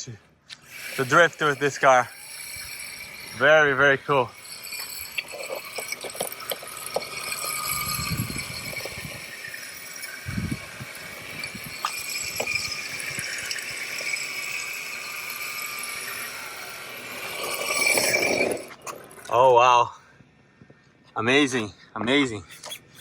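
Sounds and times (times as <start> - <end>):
rc car electric motor whining: 0.5 - 19.4
rattling from toy car: 0.6 - 19.4.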